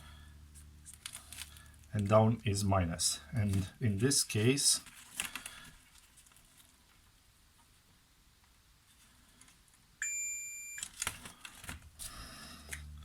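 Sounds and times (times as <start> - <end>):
multimeter high beep: 10.0 - 10.8.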